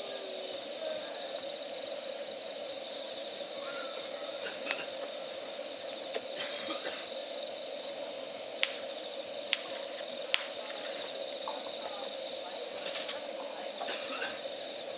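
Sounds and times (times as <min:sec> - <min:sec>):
wood fire hissing: 0:00.0 - 0:14.9
fire crackles: 0:04.4 - 0:14.9.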